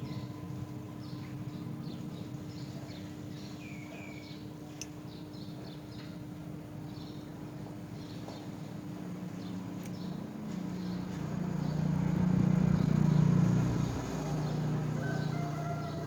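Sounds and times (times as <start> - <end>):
vehicle engine hum passing: 9.3 - 16.0.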